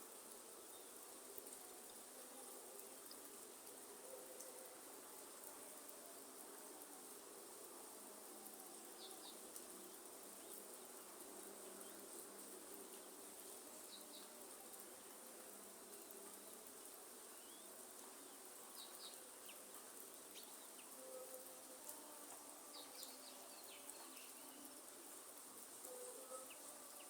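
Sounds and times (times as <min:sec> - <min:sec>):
light rain hiss: 0:00.0 - 0:27.0
insect buzz and drone: 0:15.7 - 0:27.0.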